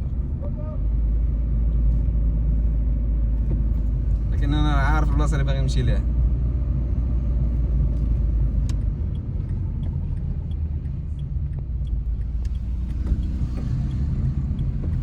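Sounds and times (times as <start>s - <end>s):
car road and engine rumble: 0.0s - 15.0s
faint repeating tick: 8.6s - 15.0s.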